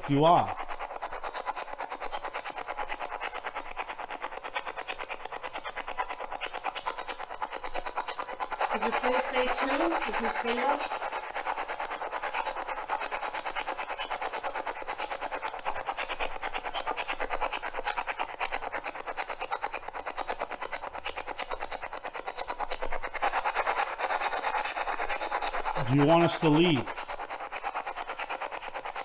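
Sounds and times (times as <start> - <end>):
radio scanning static stutter: 0.0 - 0.6, 8.7 - 11.0, 25.8 - 27.0.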